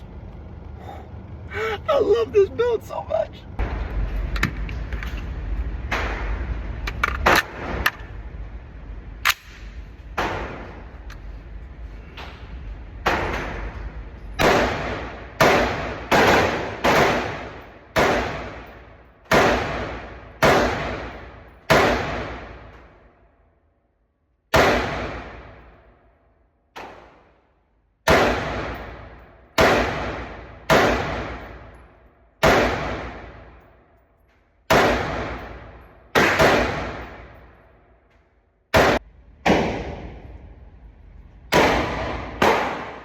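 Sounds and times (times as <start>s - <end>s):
pistol shots: 9.2s - 11.0s, 14.4s - 23.0s, 24.5s - 25.9s, 26.8s - 27.4s, 28.0s - 33.8s, 34.7s - 37.7s, 38.7s - 40.3s, 41.5s - 43.0s.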